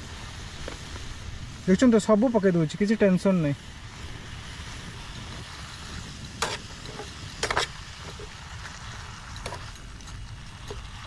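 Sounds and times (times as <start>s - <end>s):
vegetables sizzling in a pan: 0.0s - 11.0s
spatula scraping a pan: 6.0s - 8.5s.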